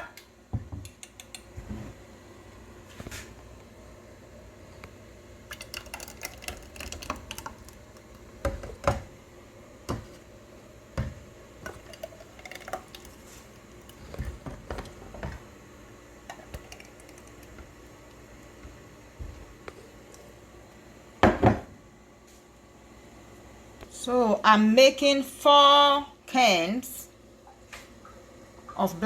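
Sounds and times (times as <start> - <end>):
spoon knocking metal cans: 5.5 - 7.7.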